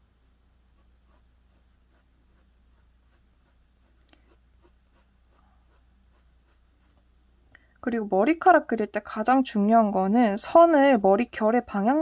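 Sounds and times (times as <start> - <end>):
pencil strokes on paper: 0.7 - 7.1, 8.5 - 9.6, 10.6 - 12.0.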